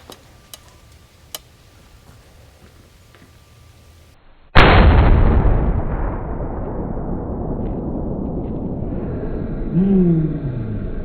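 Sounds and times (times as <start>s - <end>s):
faint clicks: 0.1s - 1.5s
loud rifle shot ringing: 4.6s - 8.8s.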